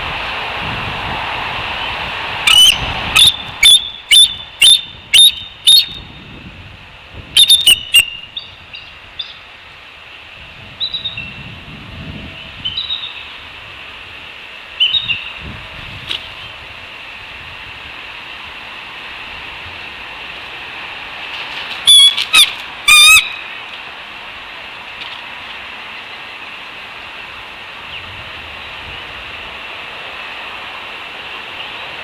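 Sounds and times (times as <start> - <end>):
bird calling sharp notes: 2.5 - 6.0, 7.4 - 8.4, 21.9 - 23.5
soft bird chirps: 2.5 - 6.0, 7.4 - 9.4
steady hiss: 11.4 - 32.0.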